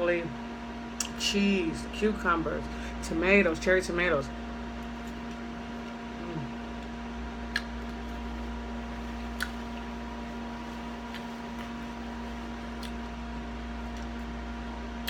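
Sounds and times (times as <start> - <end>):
electrical hum: 0.0 - 15.0
wet chewing mouth clicks: 7.5 - 8.2, 9.2 - 9.9, 11.0 - 13.2.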